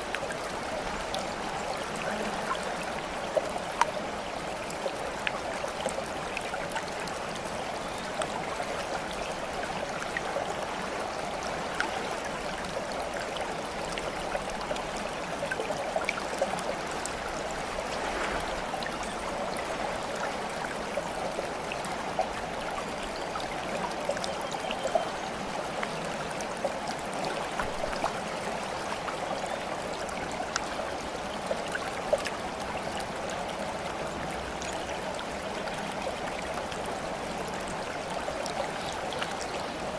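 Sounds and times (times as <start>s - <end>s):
water flowing and trickling: 0.0s - 39.9s.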